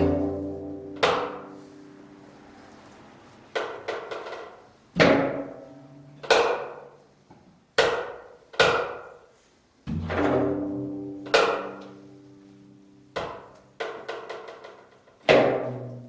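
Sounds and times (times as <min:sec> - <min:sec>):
zither strings struck: 0:00.0 - 0:02.3.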